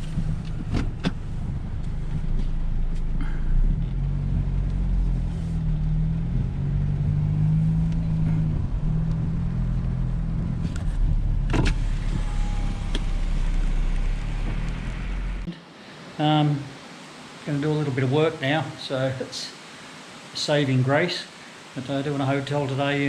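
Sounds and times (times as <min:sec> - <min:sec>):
car engine and road noise: 0:00.0 - 0:15.5.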